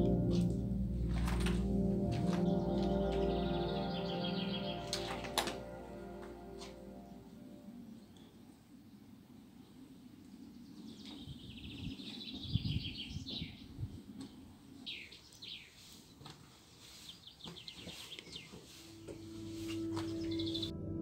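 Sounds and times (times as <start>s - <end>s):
small birds chirping and trilling: 8.0s - 20.7s.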